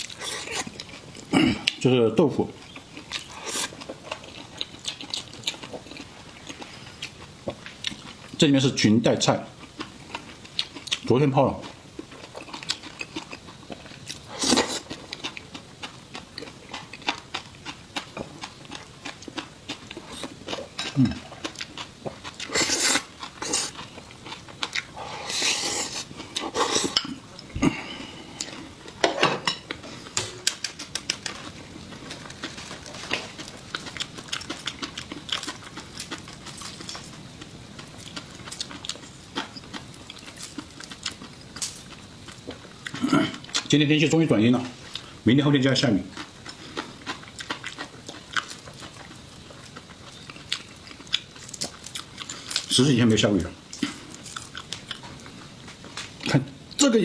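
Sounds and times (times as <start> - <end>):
slurping and eating sounds: 0.0 - 1.8, 3.0 - 8.0, 12.2 - 15.4, 18.2 - 28.8.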